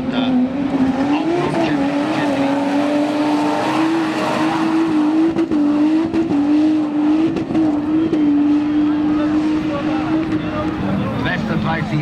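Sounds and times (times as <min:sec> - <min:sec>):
engine at high revs: 0:00.0 - 0:12.0.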